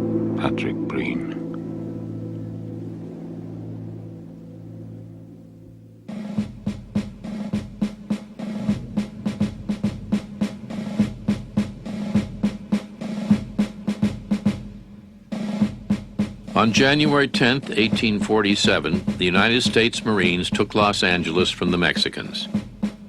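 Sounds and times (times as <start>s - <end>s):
low held note: 0.0s - 12.7s
snare drum beating: 6.1s - 23.0s.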